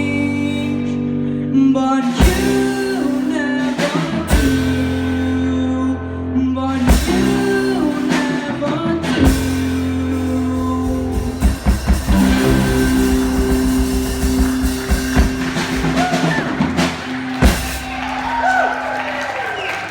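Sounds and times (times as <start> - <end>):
live rock band playing: 2.0 - 5.6, 6.7 - 19.8
crashing drum hits: 11.0 - 18.6.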